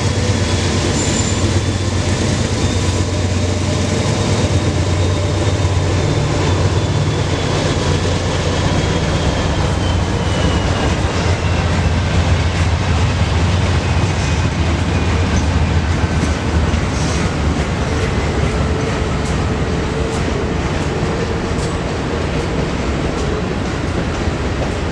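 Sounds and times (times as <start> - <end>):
high wheel squeal: 0.0 - 12.1
railcar wheels rumbling on rails: 0.0 - 24.9.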